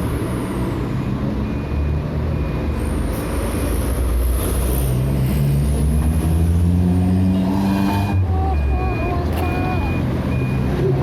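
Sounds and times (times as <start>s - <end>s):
diesel engine humming: 6.6s - 11.0s
faint high beep: 8.0s - 10.7s.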